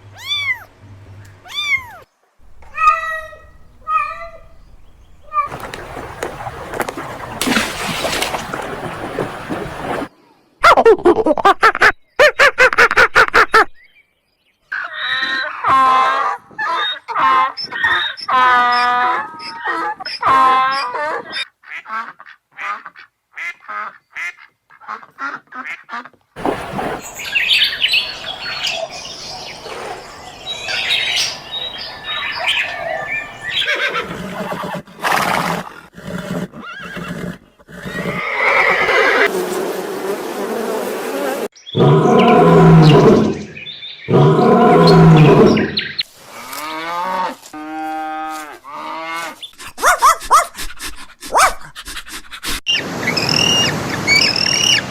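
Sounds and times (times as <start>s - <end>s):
farm animal calls: 0.0s - 7.0s.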